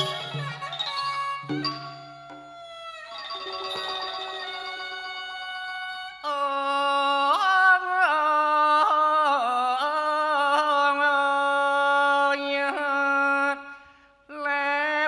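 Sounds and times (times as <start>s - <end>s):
held instrumental note: 0.0s - 2.5s
person singing ornamented vocal line: 4.4s - 15.0s.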